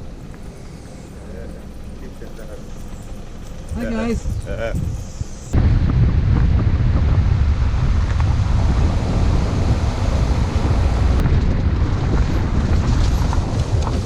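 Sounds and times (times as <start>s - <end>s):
wind buffeting microphone: 3.0s - 14.0s.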